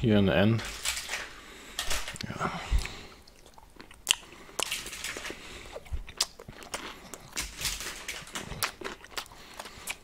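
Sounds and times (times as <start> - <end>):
snack crunching while chewed: 0.6 - 10.0
wet mouth clicks: 2.2 - 7.6.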